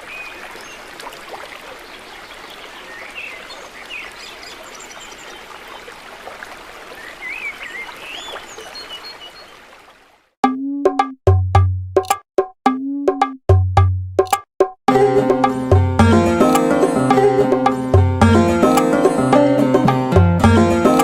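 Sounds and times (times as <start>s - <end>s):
stream running: 0.0s - 10.4s
birds chirping: 1.6s - 6.0s, 6.9s - 9.7s.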